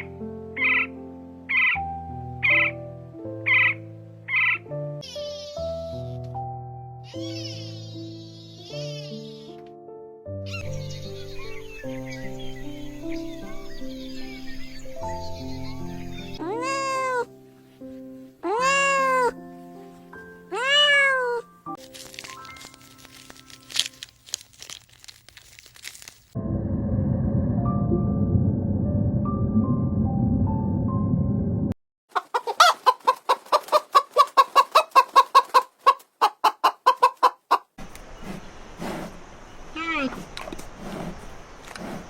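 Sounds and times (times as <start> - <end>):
background music: 0.0 - 24.1
cat meowing: 16.4 - 17.3, 18.4 - 19.4, 20.5 - 21.5
chicken clucking: 32.1 - 37.7.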